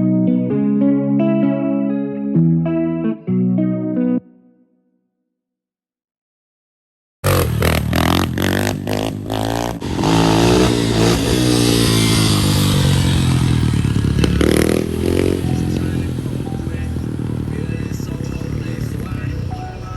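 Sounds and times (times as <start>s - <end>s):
vehicle engine revving: 7.2s - 19.9s.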